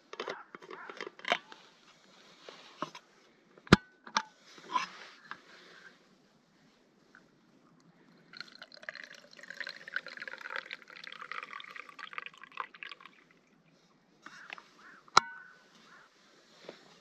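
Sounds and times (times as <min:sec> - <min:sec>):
liquid pouring into container: 0:08.3 - 0:13.7.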